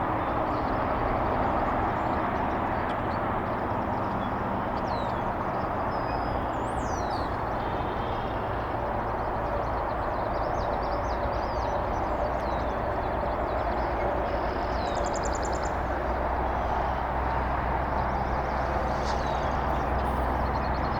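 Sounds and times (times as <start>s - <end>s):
distant outdoor rumble: 12.7s - 20.9s.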